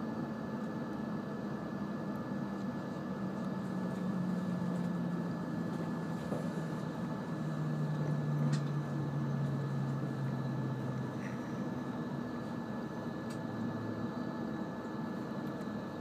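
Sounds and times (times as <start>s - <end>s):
train running rumble: 2.4s - 14.1s.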